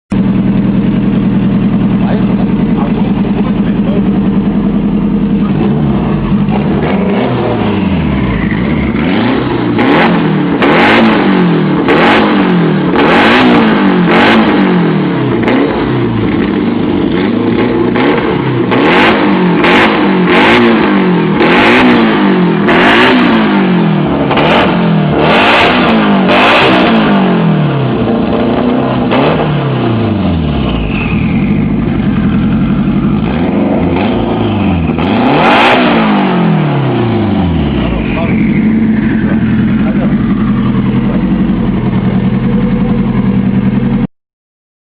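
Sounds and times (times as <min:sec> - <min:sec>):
exhaust crackle: 0:00.1 - 0:11.0, 0:22.5 - 0:44.1
car engine idling and revving: 0:00.1 - 0:44.1.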